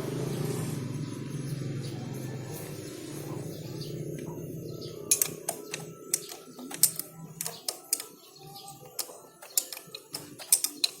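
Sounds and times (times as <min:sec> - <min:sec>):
metal engine parts clicking: 0:03.9 - 0:11.0.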